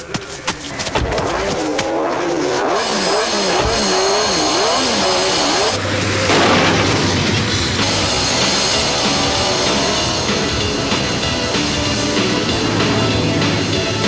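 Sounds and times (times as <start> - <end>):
cartoon engines revving: 0.5 - 14.0.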